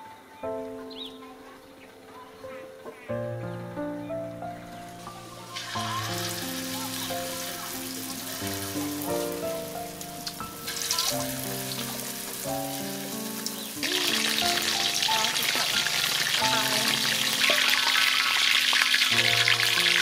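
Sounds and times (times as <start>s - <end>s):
background music with sustained notes: 0.0s - 20.0s
food deep-frying in oil: 5.2s - 20.0s.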